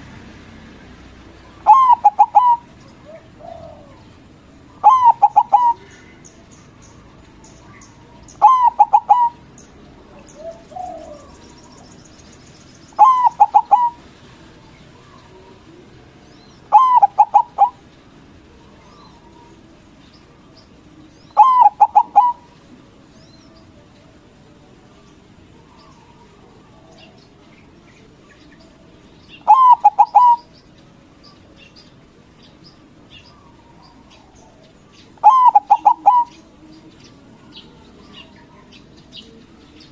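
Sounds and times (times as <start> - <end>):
small birds chirping: 0.0 - 39.9
dove cooing: 1.4 - 6.2, 7.2 - 11.6, 13.0 - 14.1, 14.9 - 19.9, 21.0 - 22.8, 29.4 - 30.6, 33.2 - 39.6
fainter lower bird calls: 1.4 - 14.1, 14.7 - 24.3, 25.0 - 39.9.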